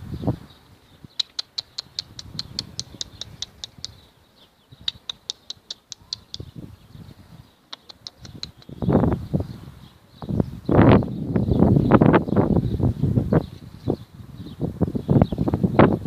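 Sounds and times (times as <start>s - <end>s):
pigeons high-pitched calls: 0.0s - 16.0s
pigeons soft low cooing: 1.0s - 10.0s.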